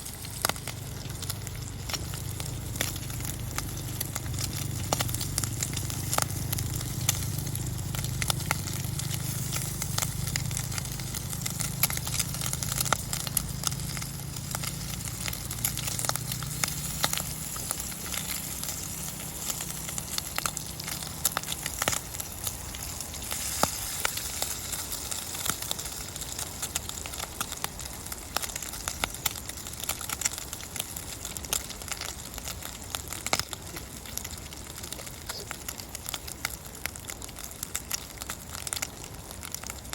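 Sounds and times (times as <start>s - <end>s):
low hum: 0.0s - 24.6s
campfire crackling and popping: 0.0s - 39.9s.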